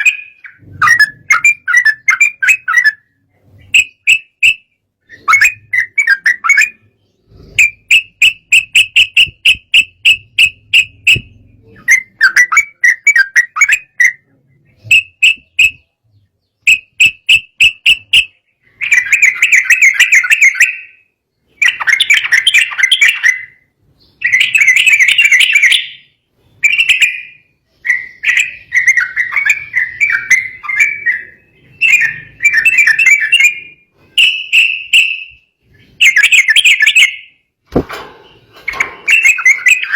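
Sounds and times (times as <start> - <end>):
bulbul chattering whistles: 0.0 - 16.0, 16.6 - 23.6, 39.0 - 39.9.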